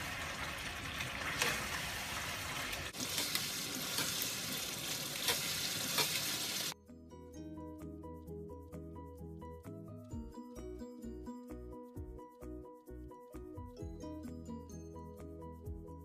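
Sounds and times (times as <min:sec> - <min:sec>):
curry sizzling in a pan: 0:00.0 - 0:06.8
spatula scraping a pan: 0:01.2 - 0:01.9, 0:05.1 - 0:06.5
light instrumental music: 0:06.8 - 0:16.0.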